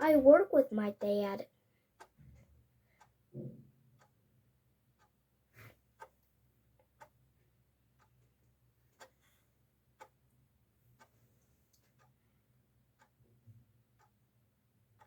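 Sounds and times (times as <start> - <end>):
clock ticking: 0.0 - 1.4, 2.0 - 2.3, 2.9 - 5.3, 5.9 - 11.2, 11.8 - 15.0.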